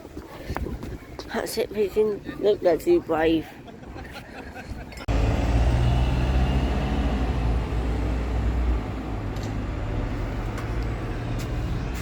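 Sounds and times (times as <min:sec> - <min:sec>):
bus engine rumbling: 0:03.2 - 0:12.0.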